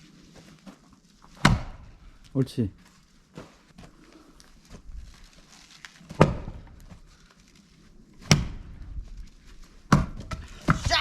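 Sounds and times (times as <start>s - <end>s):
axe striking log: 1.4s - 1.8s.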